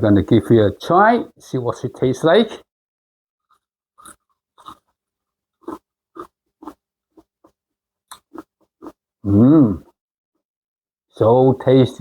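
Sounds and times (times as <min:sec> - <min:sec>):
chewing crispy fried chicken: 0:04.0 - 0:05.0, 0:05.6 - 0:09.0.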